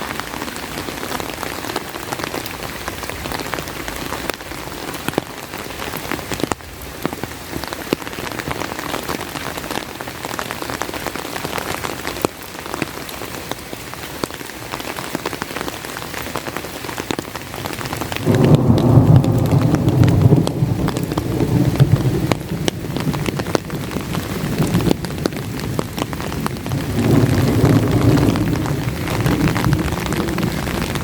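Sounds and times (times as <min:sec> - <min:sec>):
heavy rain on umbrella: 0:00.0 - 0:31.0
thunder rumbling: 0:18.2 - 0:31.0.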